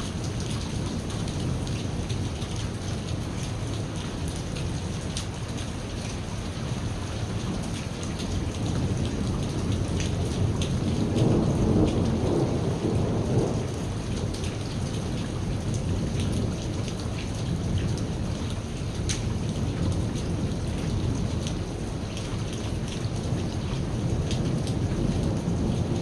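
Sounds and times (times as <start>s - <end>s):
heavy rain: 0.0s - 26.0s
thunder rumbling: 8.6s - 21.9s, 23.2s - 26.0s.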